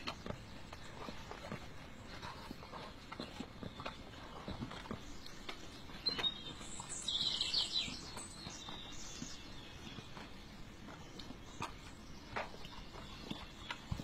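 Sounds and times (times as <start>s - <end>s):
small bird chirping: 5.9s - 10.2s.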